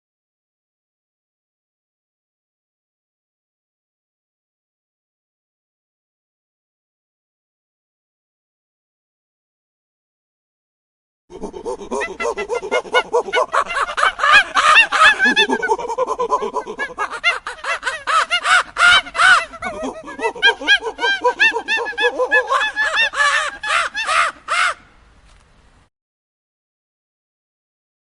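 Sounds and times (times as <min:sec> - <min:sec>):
birds calling: 0:11.6 - 0:24.8.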